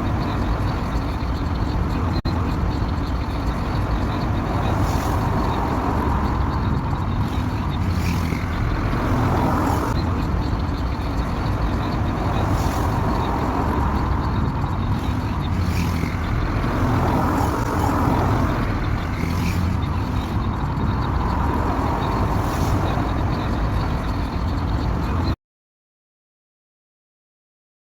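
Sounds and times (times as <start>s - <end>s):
car rumbling on the move: 0.0s - 25.4s.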